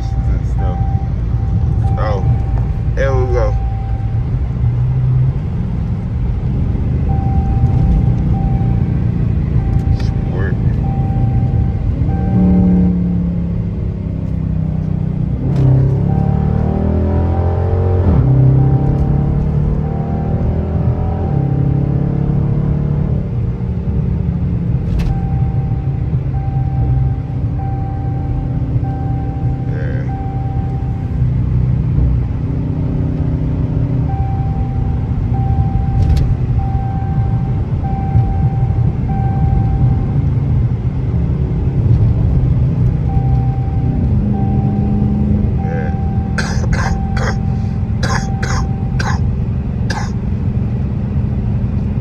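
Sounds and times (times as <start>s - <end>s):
car exhaust rumble: 0.0s - 52.0s
person coughing: 46.4s - 49.2s, 49.9s - 50.2s.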